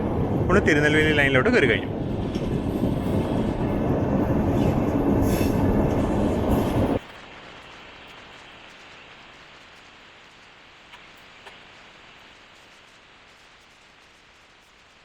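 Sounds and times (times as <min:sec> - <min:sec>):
train wheels rumbling on rails: 0:00.0 - 0:07.2
faint hiss: 0:06.5 - 0:15.0.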